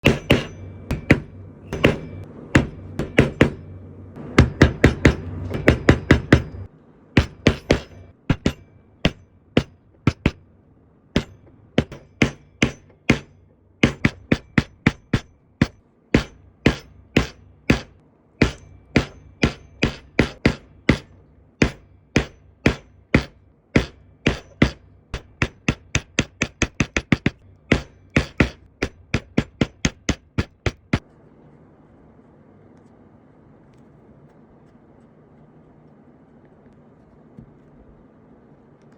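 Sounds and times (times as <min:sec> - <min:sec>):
mallet tapping leather stamp: 0:00.0 - 0:03.6, 0:04.4 - 0:10.4, 0:11.2 - 0:31.0
low steady background sound: 0:00.0 - 0:38.9.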